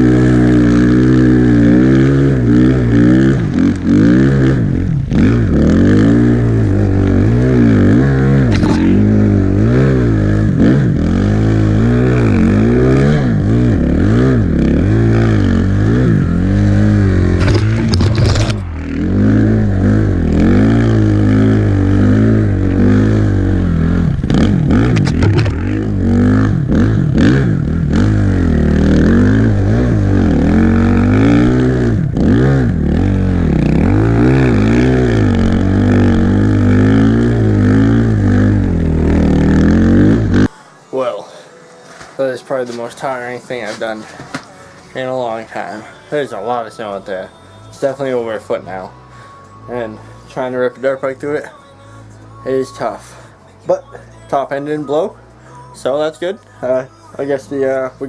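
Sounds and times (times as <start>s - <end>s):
dirt bike engine revving: 0.0s - 40.6s.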